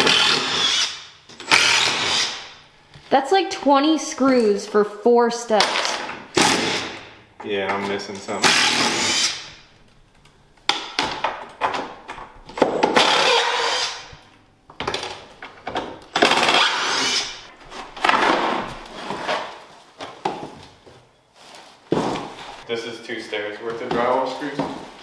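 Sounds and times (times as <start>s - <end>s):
cordless drill running: 0.0s - 2.5s, 8.4s - 9.6s, 13.0s - 14.1s, 16.2s - 17.4s.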